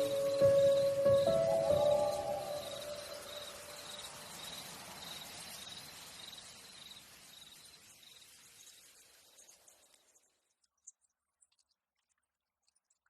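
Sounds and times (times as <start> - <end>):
soft ambient hiss: 0.0 - 10.7
cricket chirping: 0.0 - 11.1.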